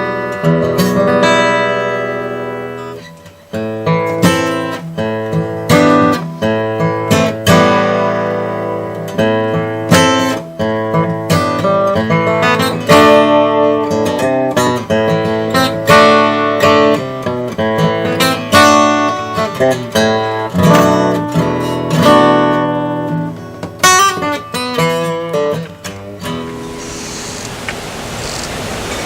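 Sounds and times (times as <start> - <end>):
acoustic guitar playing: 0.0 - 29.0.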